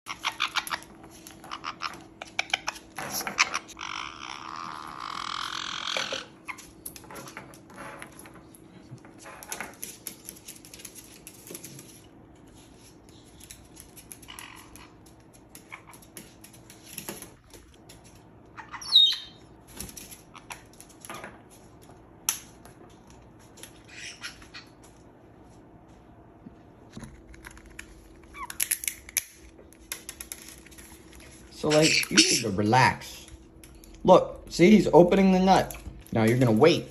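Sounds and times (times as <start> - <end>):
parrot squawk: 0.1 - 6.6, 14.3 - 15.0, 18.6 - 19.4, 23.8 - 24.8, 31.6 - 32.6
parrot beaks clicking and crunching: 0.1 - 7.4, 13.1 - 19.1, 27.0 - 32.5.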